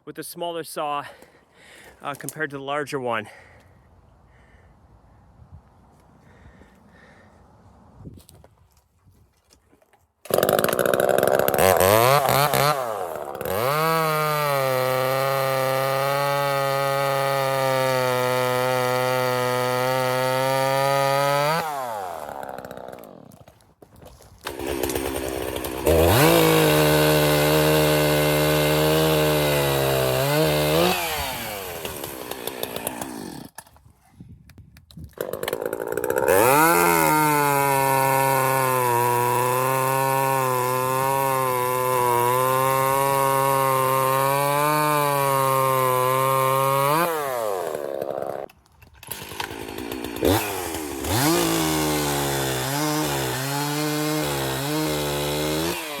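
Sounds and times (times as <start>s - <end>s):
chainsaw cutting wood: 10.2s - 33.8s, 35.1s - 56.0s.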